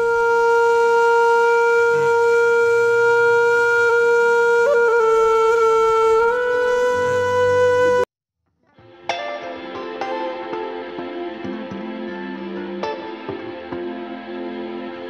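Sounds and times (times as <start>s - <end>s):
wind instrument long held note: 0.0s - 8.1s.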